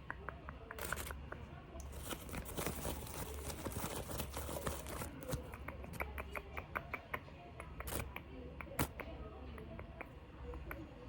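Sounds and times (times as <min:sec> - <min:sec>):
crinkling and clicking: 0:00.7 - 0:06.1, 0:07.7 - 0:08.9.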